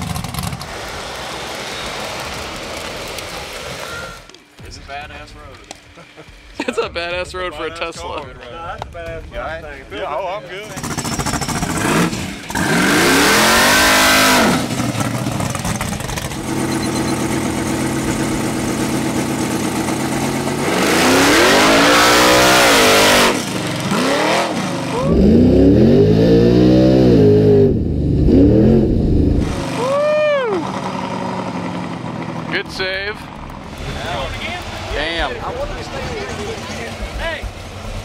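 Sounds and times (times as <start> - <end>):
car engine revving: 10.6 - 29.9, 30.6 - 38.0.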